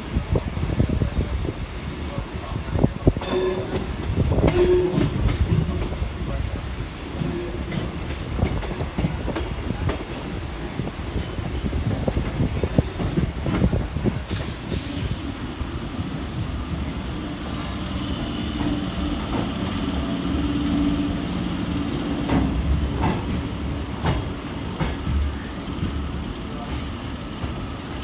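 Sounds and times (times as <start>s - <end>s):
train low hum: 0.0s - 28.0s
faint high wheel squeals: 12.8s - 14.1s, 17.3s - 19.0s
train wheels knocking over rail joints: 17.5s - 27.8s.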